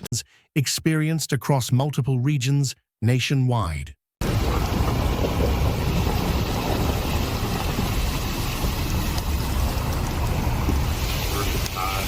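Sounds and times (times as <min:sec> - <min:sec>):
low rumbling noise: 0:04.2 - 0:12.0.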